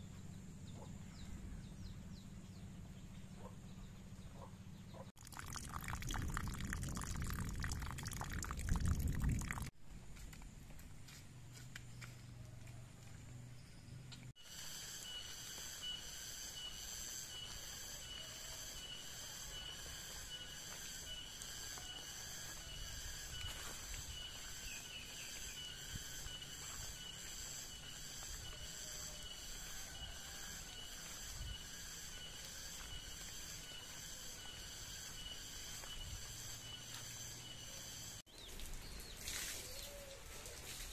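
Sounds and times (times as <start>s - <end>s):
insects chirring: 5.2s - 10.3s, 13.1s - 40.9s.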